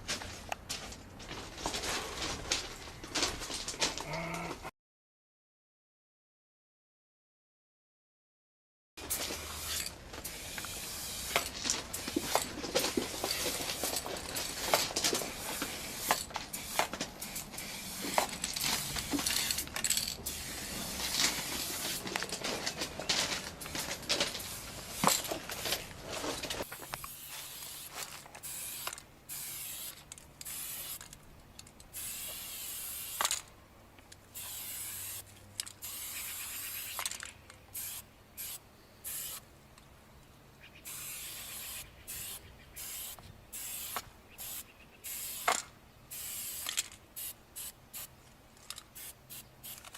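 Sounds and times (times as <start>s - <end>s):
spray paint can hissing: 9.0s - 22.0s, 24.4s - 25.6s, 26.7s - 31.1s, 31.9s - 33.4s, 34.3s - 37.1s, 37.7s - 39.5s, 40.8s - 48.2s, 48.9s - 49.9s
sharp clicks and knocks: 11.3s - 17.2s.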